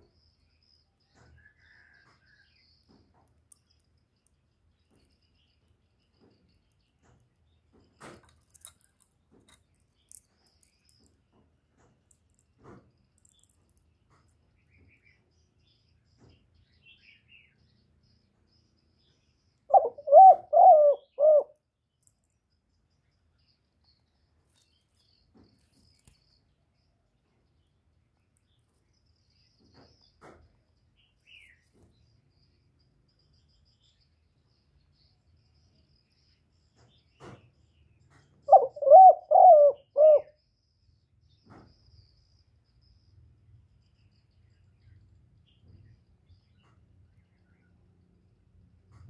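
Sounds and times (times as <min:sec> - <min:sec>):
dove cooing: 0:19.7 - 0:21.6, 0:38.5 - 0:40.4.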